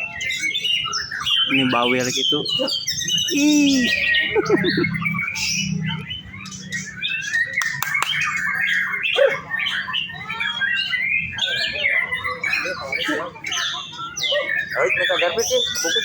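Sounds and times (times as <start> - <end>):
other songbirds calling: 0.0 - 16.0
songbird singing whistles and chirps: 0.0 - 16.0
sharp clicks: 7.6 - 8.2.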